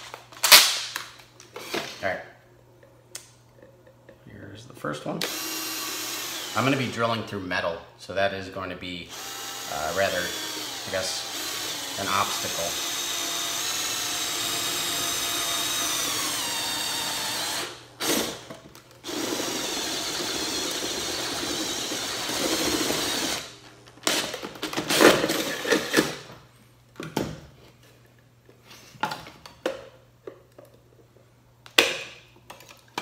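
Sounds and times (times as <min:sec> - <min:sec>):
power drill boring through metal: 0:05.2 - 0:06.8, 0:09.1 - 0:18.4, 0:19.0 - 0:23.5.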